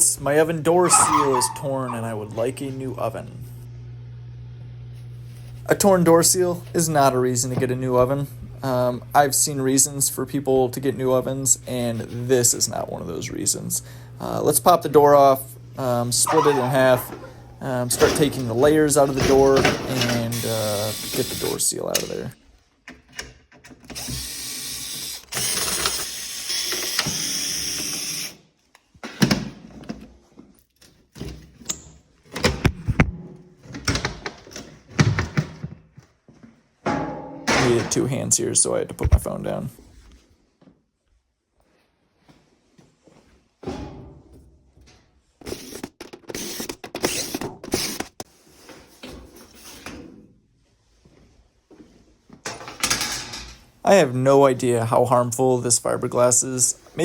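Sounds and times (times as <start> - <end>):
metal oven panels clattering: 16.3 - 20.3
cordless drill running: 20.4 - 21.6, 24.0 - 28.4, 46.4 - 48.1.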